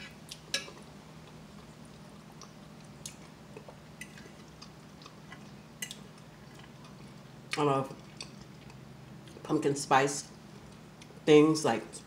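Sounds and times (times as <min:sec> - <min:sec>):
person chewing food: 0:00.0 - 0:09.4
low steady hum: 0:00.0 - 0:12.0.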